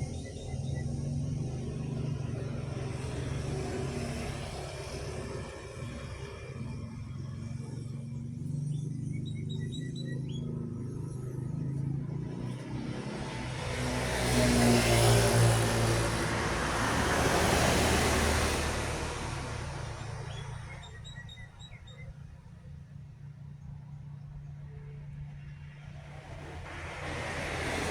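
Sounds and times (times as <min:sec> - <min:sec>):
heavy truck driving past: 0:11.3 - 0:21.6, 0:25.3 - 0:27.9
birds chirping: 0:17.4 - 0:22.8.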